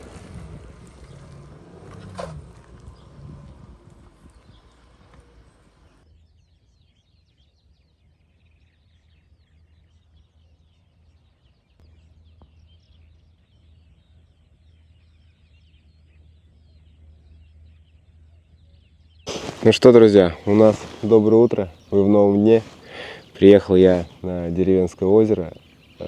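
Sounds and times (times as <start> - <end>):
low steady rumble: 0.0 - 6.0
small birds chirping: 0.0 - 26.0.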